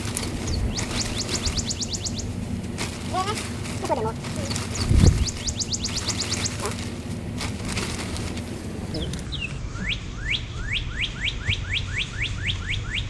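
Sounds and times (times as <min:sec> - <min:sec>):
steady low hum: 0:00.0 - 0:13.0
songbird whistling: 0:00.4 - 0:02.4, 0:04.5 - 0:06.6, 0:08.9 - 0:13.0.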